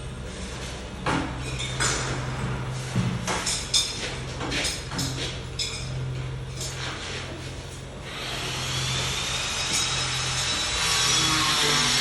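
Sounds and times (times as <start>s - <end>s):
steady low hum: 0.0s - 12.0s
scraping rattles of tools: 2.8s - 8.0s, 9.4s - 12.0s.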